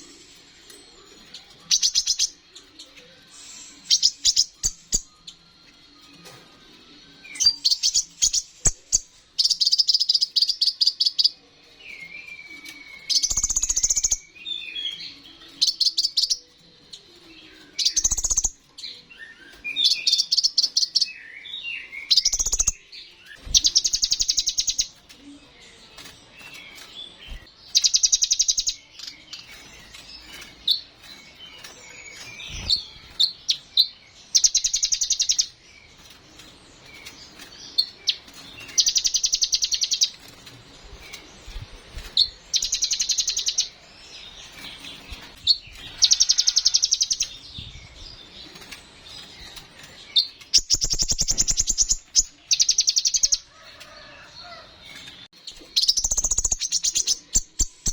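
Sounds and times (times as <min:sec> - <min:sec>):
soft twittering chirps: 0:00.0 - 0:16.5, 0:17.5 - 0:54.6, 0:55.3 - 0:57.9
bird trilling: 0:50.5 - 0:53.4.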